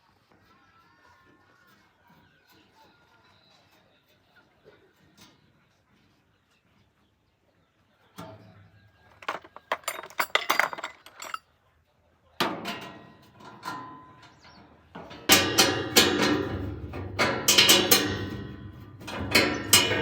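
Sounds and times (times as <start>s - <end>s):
hard objects clinking and knocking: 9.1s - 11.4s.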